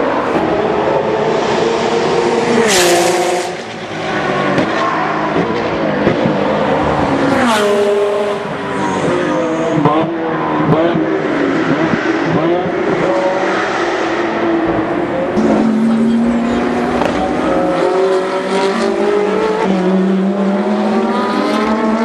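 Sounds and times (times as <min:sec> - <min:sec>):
race car engines at high revs: 0:00.0 - 0:22.0.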